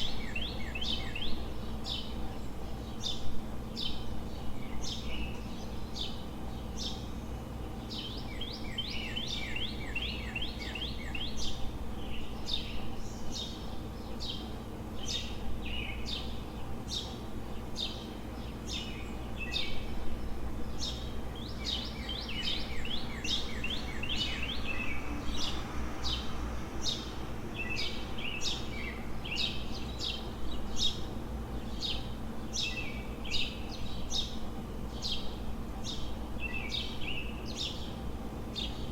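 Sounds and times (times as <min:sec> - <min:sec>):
low city hum: 0:00.0 - 0:38.9
small songbirds chirping: 0:00.0 - 0:38.9.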